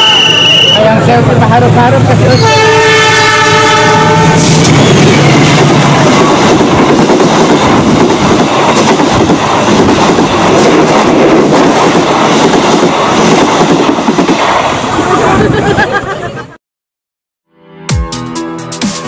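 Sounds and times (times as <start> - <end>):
train passing on track: 0.0 - 16.6.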